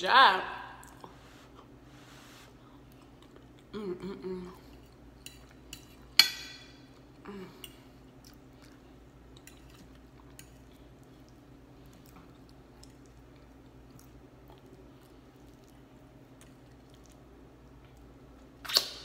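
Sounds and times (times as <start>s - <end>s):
close-up chewing: 2.5s - 3.8s, 7.9s - 18.3s.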